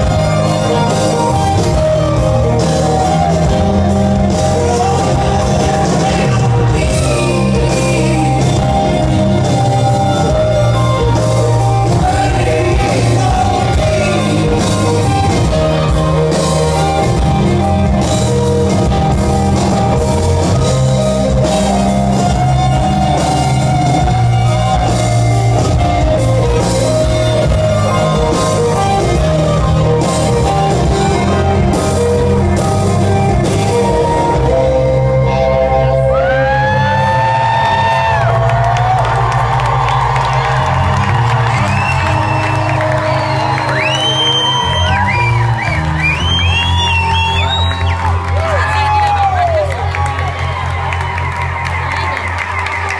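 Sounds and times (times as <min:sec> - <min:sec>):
live rock band playing: 0:00.0 - 0:52.9.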